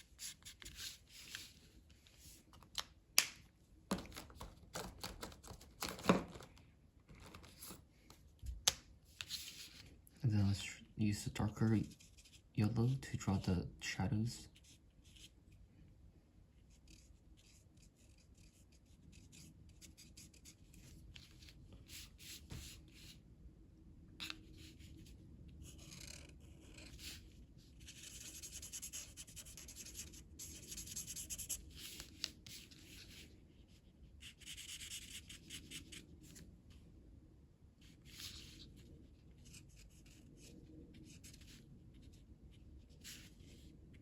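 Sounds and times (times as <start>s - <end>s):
colour stick scratching on paper: 16.6s - 21.0s, 25.6s - 36.0s.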